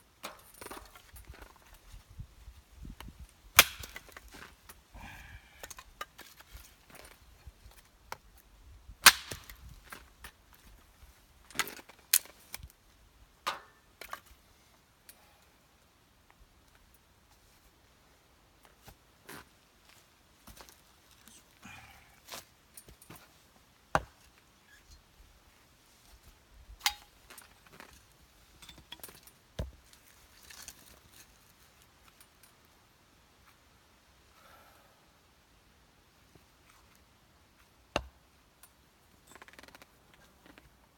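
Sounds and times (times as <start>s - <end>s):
firewood being split and handled: 0.1s - 14.5s, 18.6s - 32.4s, 36.4s - 40.8s
firewood cracking when split: 3.6s - 4.5s, 9.0s - 9.7s.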